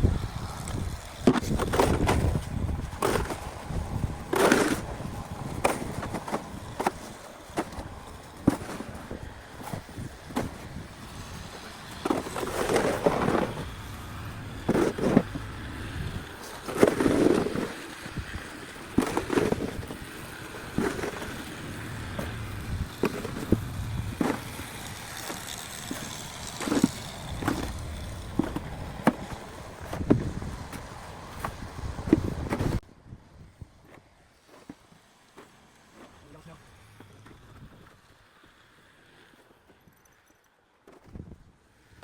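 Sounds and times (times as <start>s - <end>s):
snow shovel scraping snow: 0.0s - 32.8s.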